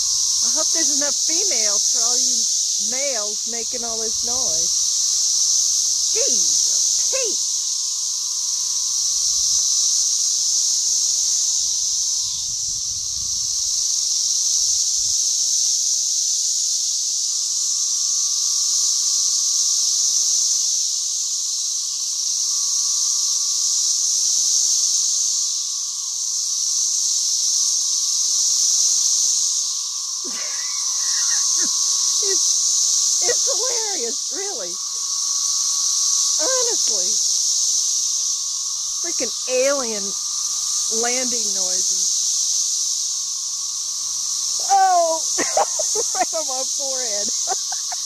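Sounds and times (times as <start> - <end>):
cicadas buzzing: 0.0 - 48.0
low wind rumbles: 11.6 - 13.9.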